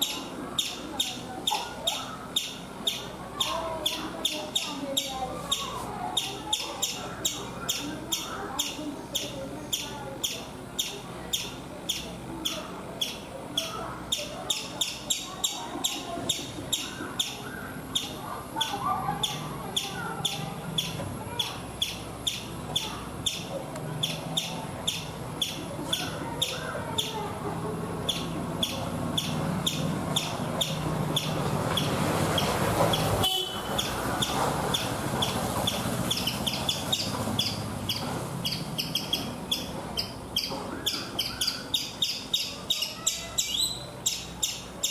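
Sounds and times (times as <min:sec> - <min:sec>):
squirrel chip calls: 0:00.0 - 0:44.9.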